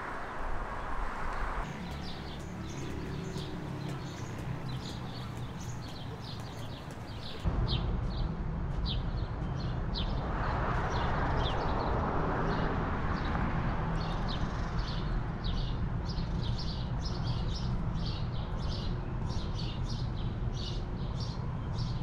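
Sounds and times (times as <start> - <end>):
small birds chirping: 1.4 - 7.4.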